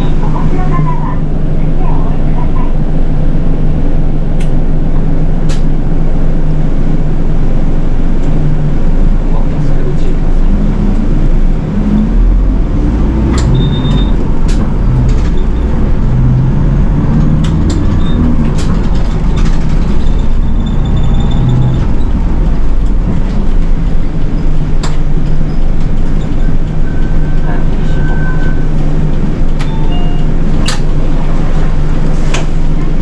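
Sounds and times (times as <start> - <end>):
bus engine and road rumble: 0.0 - 33.0
rattles and knocks from bus: 7.8 - 33.0.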